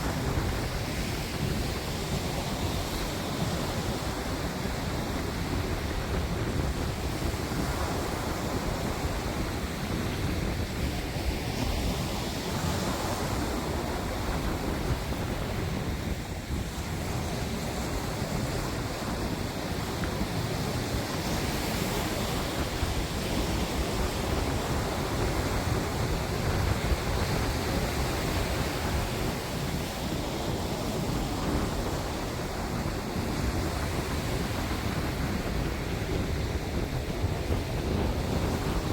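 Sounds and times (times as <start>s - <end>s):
sea waves: 0.0s - 38.9s
wind buffeting microphone: 0.0s - 38.9s.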